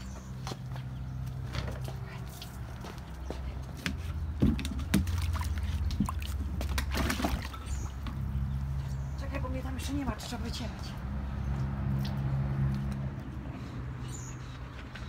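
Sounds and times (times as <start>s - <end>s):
water sloshing in plastic tub: 0.0s - 10.1s.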